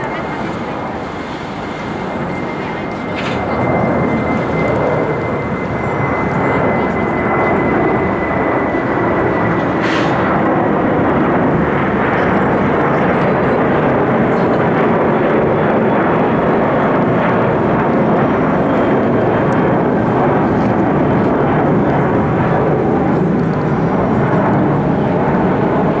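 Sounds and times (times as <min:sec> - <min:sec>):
faint high whine: 0:00.0 - 0:12.9
jet engines at takeoff thrust: 0:00.0 - 0:26.0.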